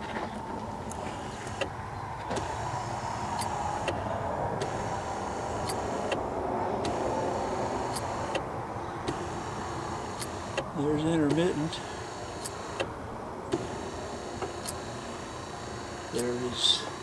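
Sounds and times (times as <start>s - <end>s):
wiper motor humming: 0.7s - 17.0s
sharp clicks: 0.8s - 17.0s.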